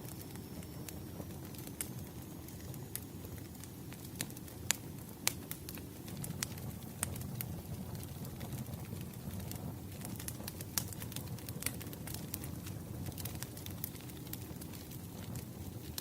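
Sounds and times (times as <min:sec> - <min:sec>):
fire crackling and popping: 0:00.0 - 0:16.0
low rush of flames: 0:00.0 - 0:16.0.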